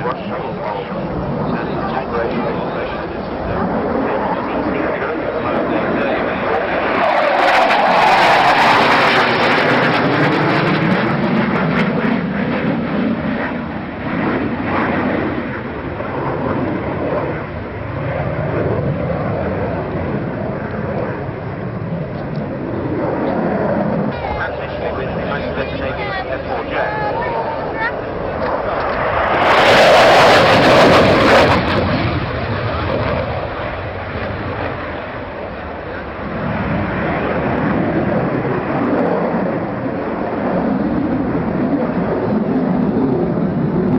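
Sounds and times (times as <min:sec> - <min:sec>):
aircraft flying past: 0:00.0 - 0:43.9.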